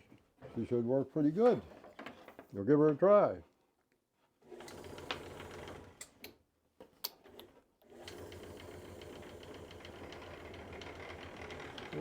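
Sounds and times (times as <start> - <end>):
electric motor running: 8.2 - 12.0.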